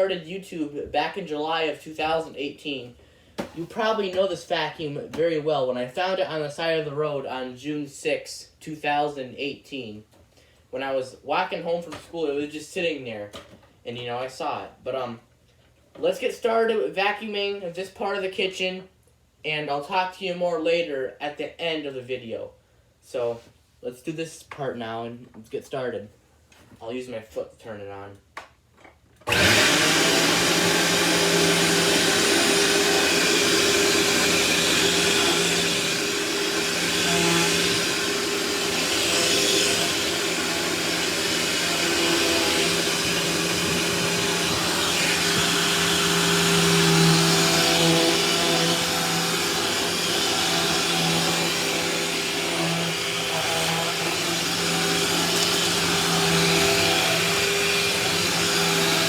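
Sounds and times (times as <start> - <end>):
vacuum cleaner running: 29.3 - 59.0.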